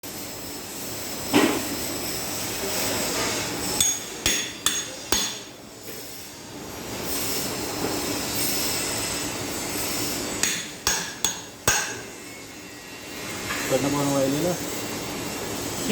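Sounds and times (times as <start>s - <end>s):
steady background noise: 0.1s - 15.9s
hammer striking metal: 3.8s - 5.6s, 10.4s - 12.2s.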